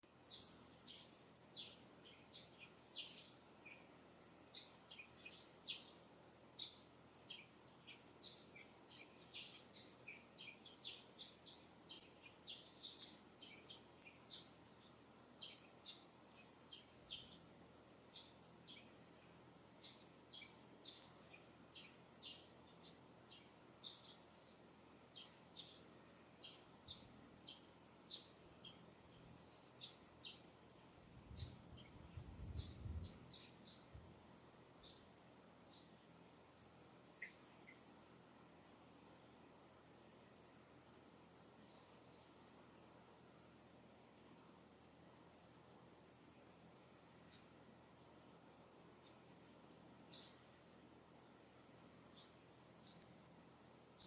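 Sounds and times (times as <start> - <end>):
distant songbirds chirping: 0.0 - 54.0.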